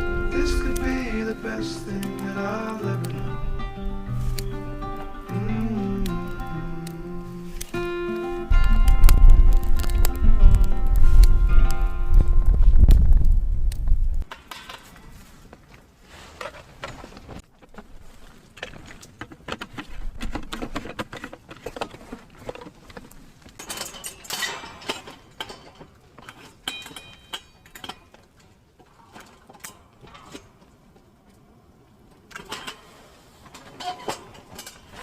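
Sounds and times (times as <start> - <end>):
short metallic ring: 26.7 - 27.7.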